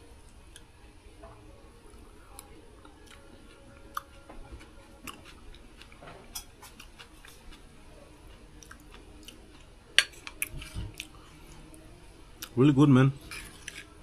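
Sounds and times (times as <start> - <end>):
person chewing: 2.3 - 6.0, 6.6 - 7.6, 8.3 - 11.3.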